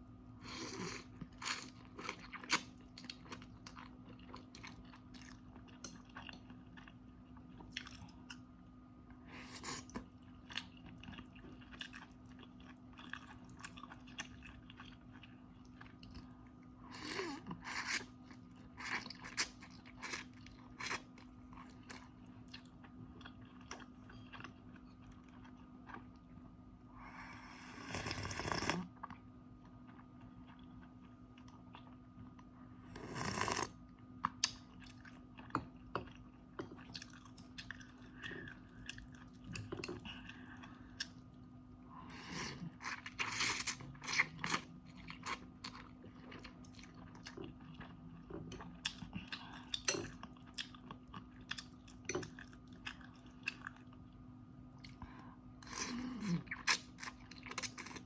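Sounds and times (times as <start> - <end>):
faint steady hum: 0.0 - 58.0
chewing and crunching food: 0.4 - 26.6, 27.8 - 58.0.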